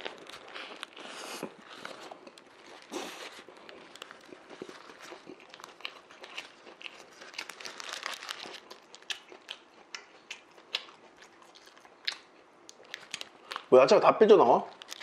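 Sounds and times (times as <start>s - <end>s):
paper wrapper crinkling: 0.0s - 9.2s, 14.7s - 15.0s
chewing sandwich: 0.0s - 13.7s, 14.7s - 15.0s.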